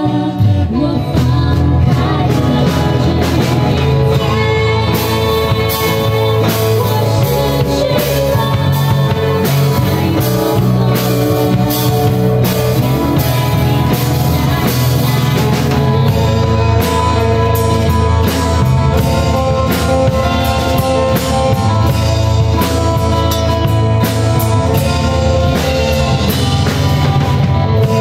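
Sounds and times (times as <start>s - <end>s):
person singing: 0.0s - 21.9s
live band playing a song: 0.0s - 28.0s.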